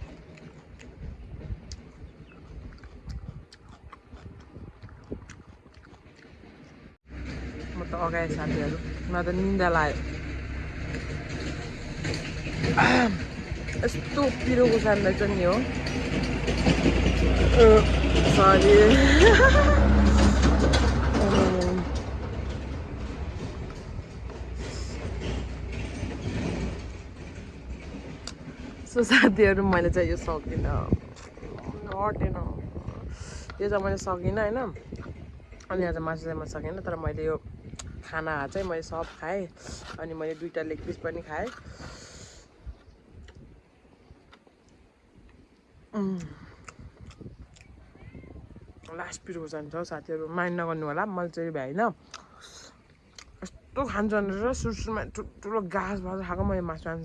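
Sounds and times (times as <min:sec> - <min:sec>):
chewing and mouth sounds: 0:00.0 - 0:06.9, 0:31.1 - 0:31.9, 0:38.6 - 0:43.5, 0:44.2 - 0:47.9, 0:52.0 - 0:53.6
low rumble: 0:00.0 - 0:49.8.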